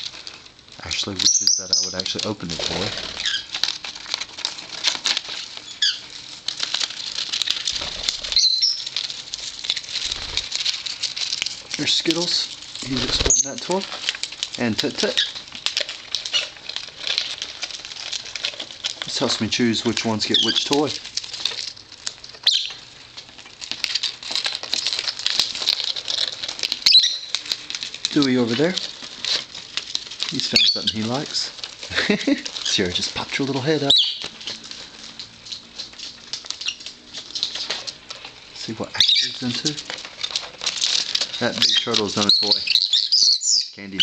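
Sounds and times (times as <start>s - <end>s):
parrots chewing toys: 0.0s - 44.0s
parrot chirps: 1.2s - 2.0s, 3.1s - 3.5s, 5.6s - 6.1s, 8.2s - 8.9s, 22.4s - 22.9s, 26.8s - 27.4s, 33.9s - 34.3s, 36.6s - 36.8s, 38.9s - 39.4s, 41.6s - 43.8s.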